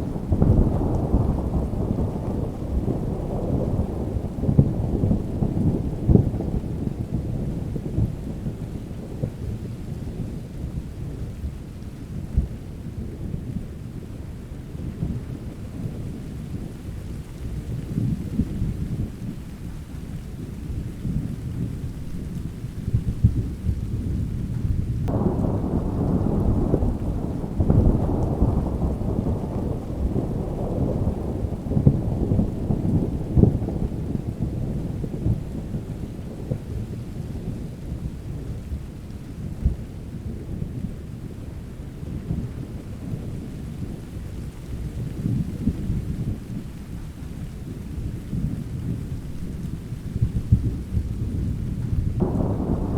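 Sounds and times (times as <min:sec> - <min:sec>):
rumbling thunder: 0:00.0 - 0:52.9
steady rain: 0:00.0 - 0:52.9
thunderclap: 0:21.0 - 0:38.8, 0:45.0 - 0:52.9.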